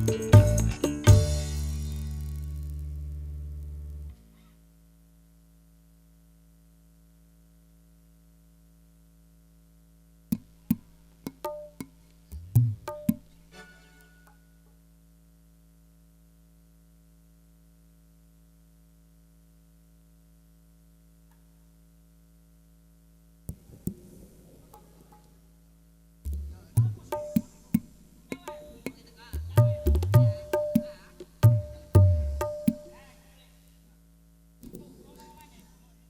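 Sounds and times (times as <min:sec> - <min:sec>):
hand drum through speakers: 0:00.0 - 0:02.4, 0:10.4 - 0:13.3, 0:26.3 - 0:33.0
sound system hum: 0:00.0 - 0:04.3, 0:23.0 - 0:33.2.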